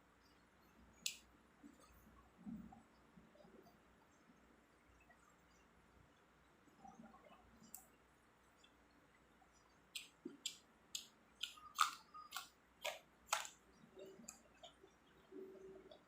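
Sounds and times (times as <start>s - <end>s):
crunchy food chewing: 9.9s - 16.0s
wet mouth noises: 9.9s - 16.0s.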